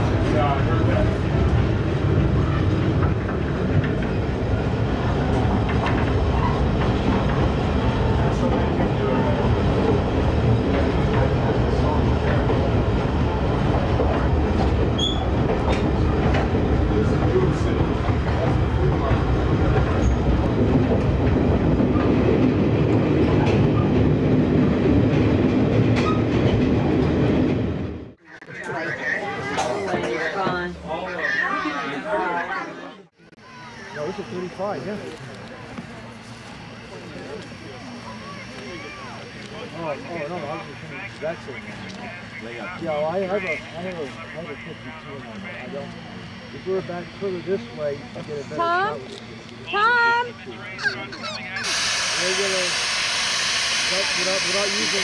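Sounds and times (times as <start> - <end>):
passenger car rolling on track: 0.0 - 28.2
train wheels on rails: 0.0 - 28.2, 51.5 - 55.0.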